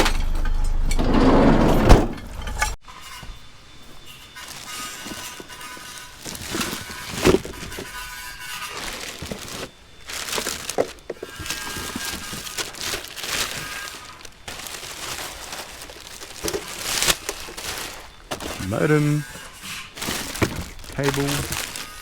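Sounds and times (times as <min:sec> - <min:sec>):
junk being rummaged: 0:00.0 - 0:02.8, 0:04.3 - 0:22.0.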